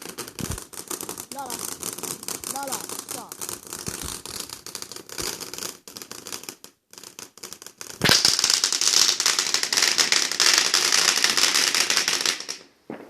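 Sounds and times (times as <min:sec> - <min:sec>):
firework crackling: 0:00.0 - 0:13.0
firework pops: 0:00.0 - 0:13.0
firework bang: 0:08.0 - 0:13.0.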